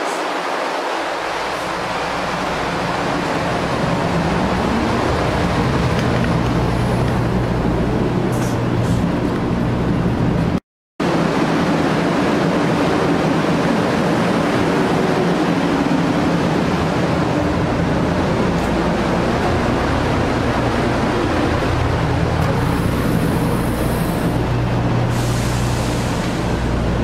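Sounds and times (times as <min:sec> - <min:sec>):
loud rushing train noise: 0:00.0 - 0:27.0.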